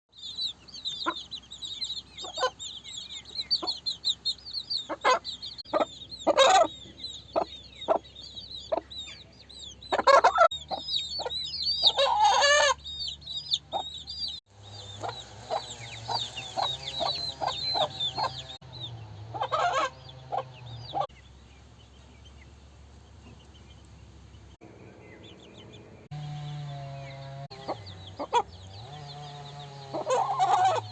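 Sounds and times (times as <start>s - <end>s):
chicks peeping: 0.2s - 30.9s
hens clucking: 0.6s - 12.8s, 13.5s - 21.1s, 27.5s - 30.9s.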